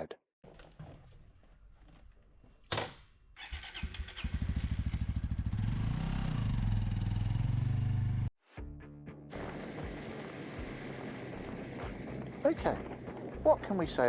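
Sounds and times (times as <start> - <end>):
motorcycle engine starting and running: 3.4 - 8.3, 9.3 - 13.4.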